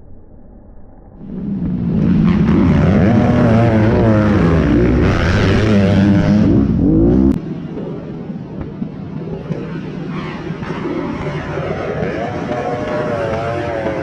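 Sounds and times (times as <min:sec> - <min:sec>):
motocross bike engines revving: 0:01.2 - 0:07.4, 0:10.6 - 0:14.0.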